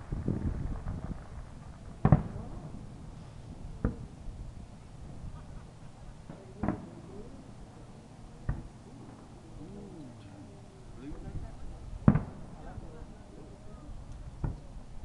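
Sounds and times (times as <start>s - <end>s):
fireworks booming: 0.0s - 5.5s, 6.2s - 7.6s, 8.4s - 9.3s, 11.3s - 13.2s.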